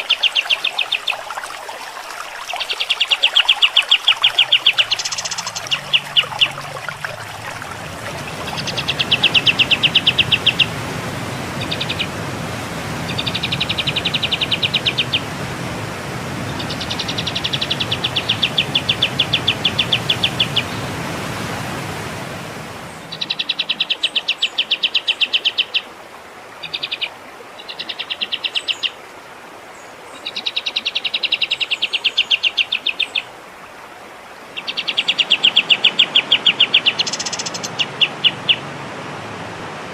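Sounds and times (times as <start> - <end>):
songbird trilling: 2.5 - 10.7, 11.6 - 12.1, 34.6 - 38.6.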